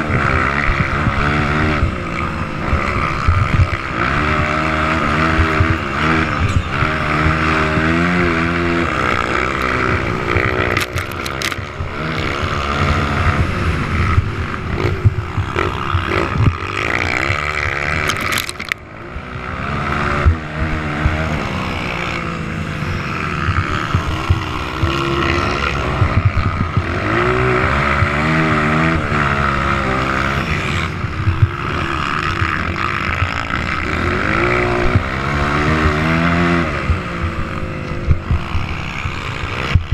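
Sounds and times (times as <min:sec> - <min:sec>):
motocross engines revving: 0:00.0 - 0:39.9.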